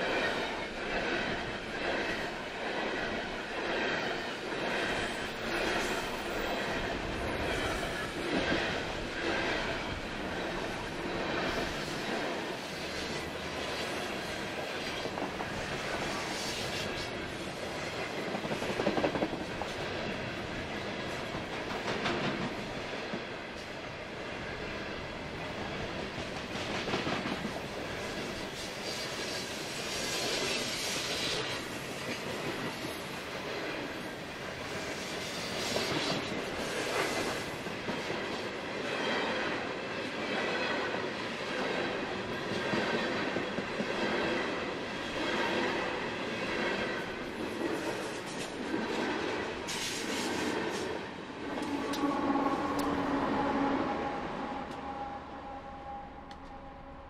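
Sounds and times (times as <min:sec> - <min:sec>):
train wheels clicking over rail joints: 0:17.9 - 0:19.8, 0:47.0 - 0:49.0.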